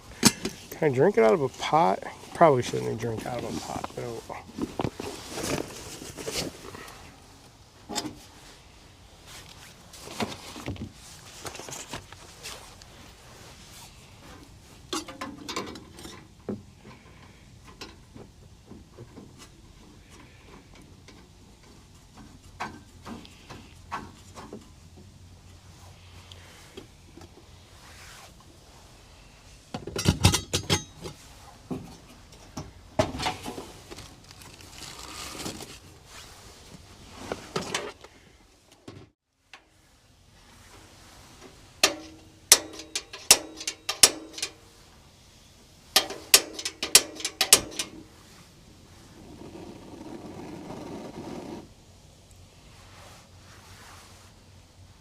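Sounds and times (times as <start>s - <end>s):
pots and utensils clinking: 41.8s - 44.6s, 46.0s - 48.0s.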